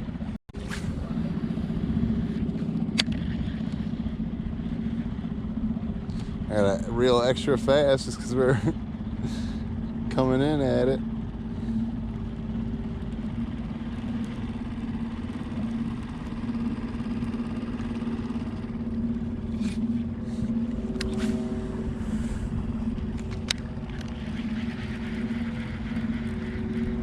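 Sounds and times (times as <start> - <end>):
outboard motor running: 0.0 - 27.0.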